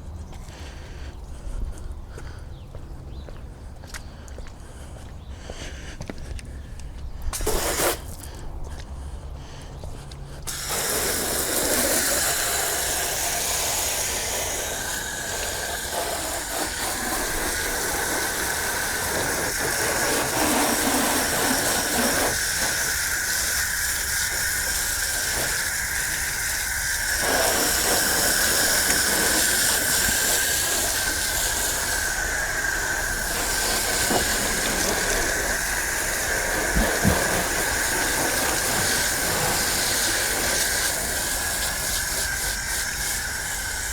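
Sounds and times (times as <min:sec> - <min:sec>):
water spraying onto car: 0:07.4 - 0:08.3, 0:10.5 - 0:43.9.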